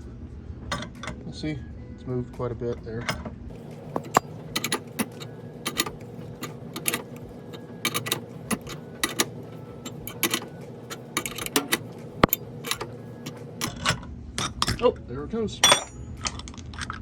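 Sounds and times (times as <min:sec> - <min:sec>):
sharp metallic clicks and ticks: 0:03.8 - 0:14.0.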